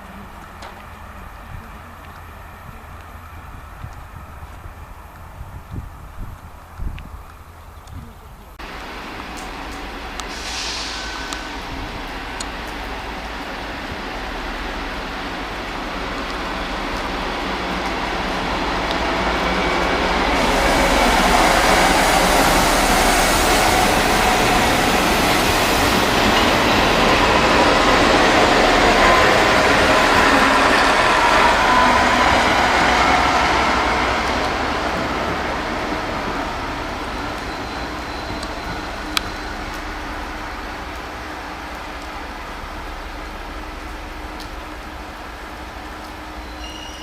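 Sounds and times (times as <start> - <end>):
train wheels rolling on rails: 8.6 - 47.0.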